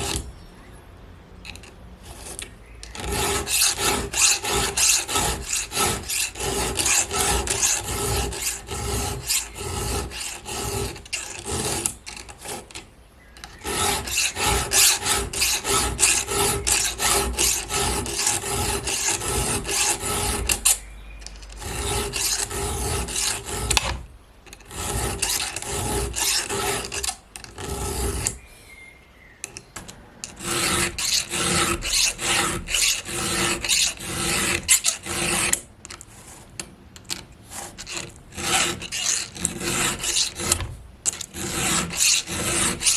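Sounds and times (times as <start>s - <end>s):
hand file rasping chainsaw chain: 1.5s - 12.8s, 13.4s - 28.4s, 30.2s - 35.6s, 37.5s - 42.9s.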